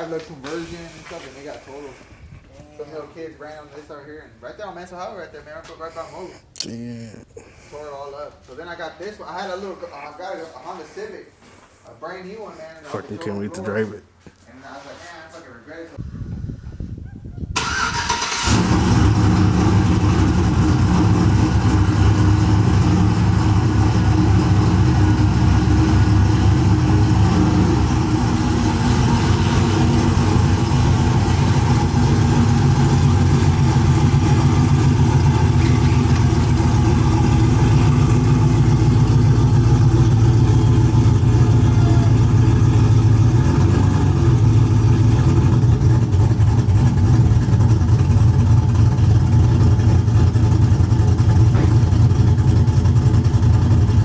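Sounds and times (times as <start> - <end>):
truck engine droning: 17.6 - 54.0.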